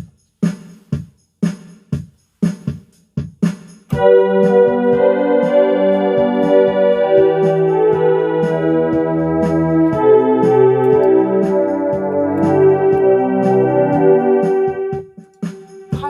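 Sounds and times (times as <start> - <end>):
steady light beat: 0.0 - 16.0
electronic keyboard playing a hymn: 3.9 - 15.0.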